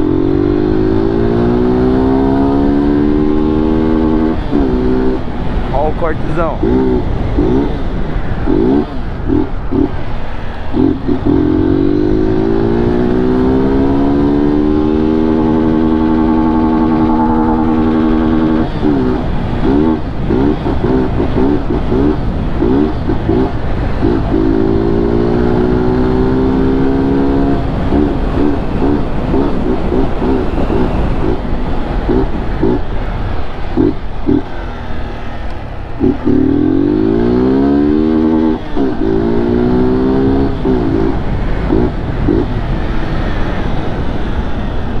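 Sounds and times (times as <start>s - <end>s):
wind noise: 0.0s - 34.7s
motorcycle engine revving: 0.0s - 45.0s.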